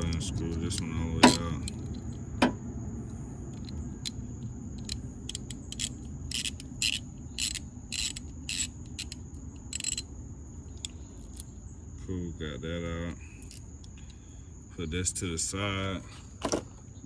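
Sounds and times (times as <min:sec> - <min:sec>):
metallic clicks and scrapes: 0:00.0 - 0:10.1, 0:10.7 - 0:11.6, 0:13.4 - 0:14.2.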